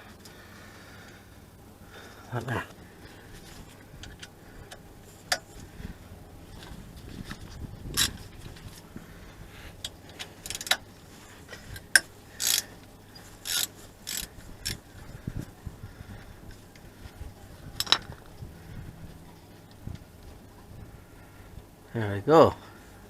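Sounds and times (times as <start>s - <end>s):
faint low hum: 0.0s - 23.0s
metal tools clicking and rasping: 10.1s - 10.8s, 11.8s - 14.8s.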